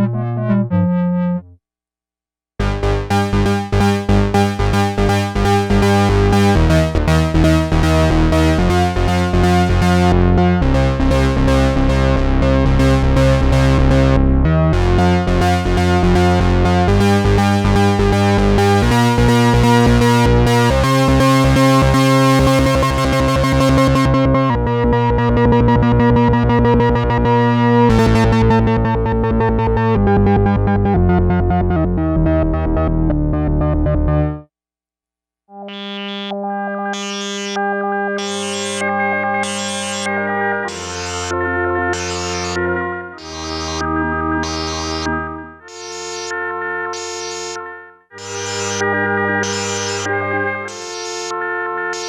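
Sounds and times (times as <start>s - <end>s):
synthesizer chord stabs: 2.6s - 12.1s, 27.9s - 28.9s, 35.7s - 52.0s
synthesizer held chords: 2.6s - 34.4s, 35.7s - 52.0s
fast low synth pulsing: 40.7s - 42.6s, 43.2s - 45.1s, 48.2s - 51.3s.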